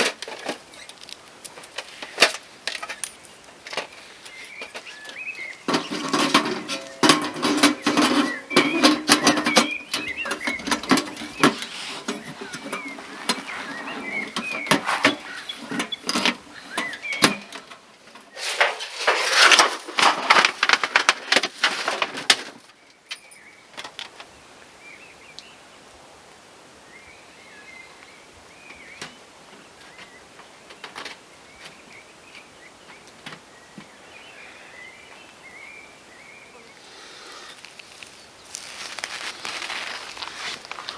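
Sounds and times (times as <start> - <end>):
rustling and clicking handling noises: 0.0 - 24.3, 37.3 - 40.9
small birds chirping: 0.6 - 18.6, 26.8 - 40.9.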